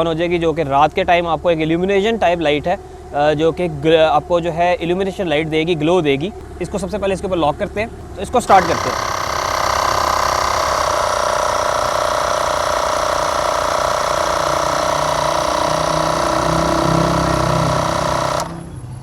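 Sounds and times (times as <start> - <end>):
air compressor rattling: 7.8 - 19.0.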